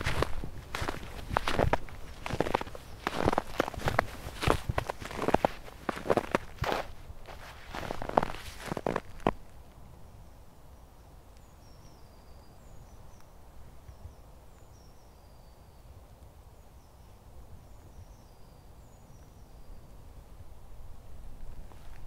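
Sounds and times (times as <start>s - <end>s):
small songbird chirping: 0.0s - 6.9s, 10.1s - 20.1s.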